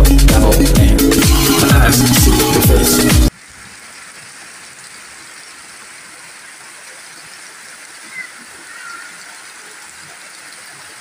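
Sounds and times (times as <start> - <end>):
rain falling on wet ground: 3.3 - 11.0.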